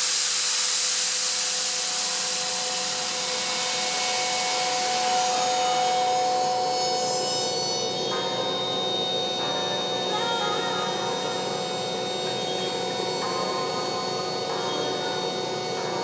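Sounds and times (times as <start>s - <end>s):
loud hiss of air: 0.0s - 6.7s
air compressor whine: 0.0s - 16.0s.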